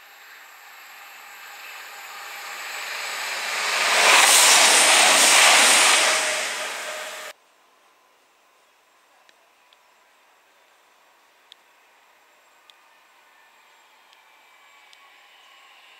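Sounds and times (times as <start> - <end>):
train rushing past: 0.0 - 7.3.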